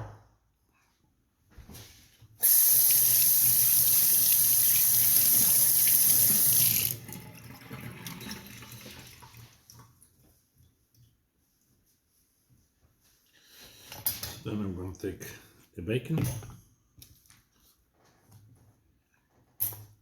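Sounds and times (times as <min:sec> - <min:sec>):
kitchen tap running into sink: 0:02.4 - 0:09.8.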